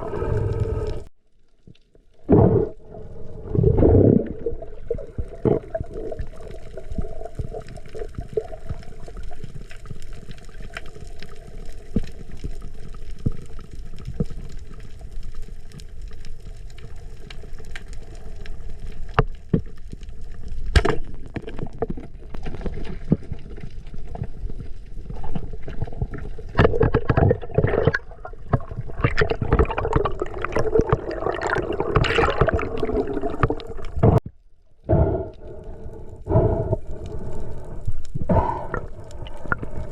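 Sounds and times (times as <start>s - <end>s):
water gurgling underwater: 2.2s - 11.9s, 21.3s - 34.3s, 34.9s - 39.9s.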